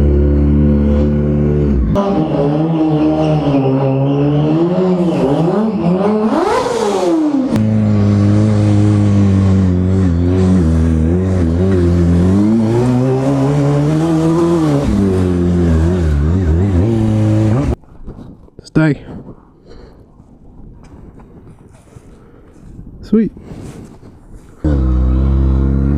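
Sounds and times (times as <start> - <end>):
motorcycle engine revving: 0.0 - 17.8, 24.6 - 25.9.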